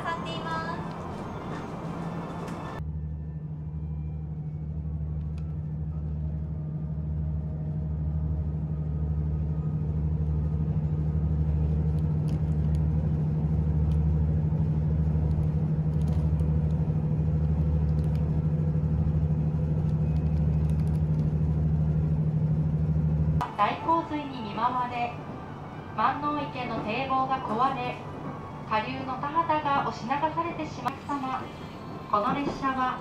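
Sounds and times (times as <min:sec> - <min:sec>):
throbbing rumble: 0:00.0 - 0:23.6
railcar engine drone: 0:00.0 - 0:33.0.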